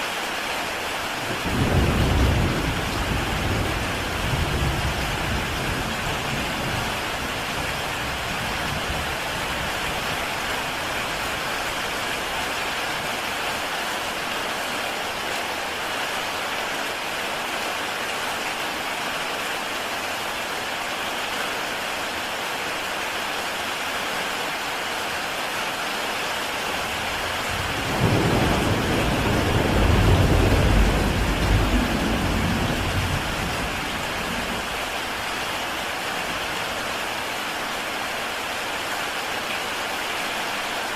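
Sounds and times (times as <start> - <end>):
heavy rain on a tile roof: 0.0 - 40.9
thunder rumbling: 1.4 - 9.8, 26.8 - 35.3.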